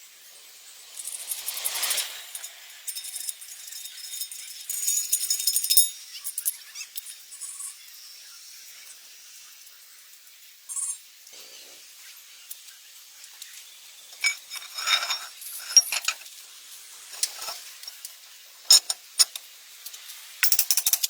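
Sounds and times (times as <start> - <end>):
small hard objects clinking: 14.2 - 16.3, 20.4 - 21.0.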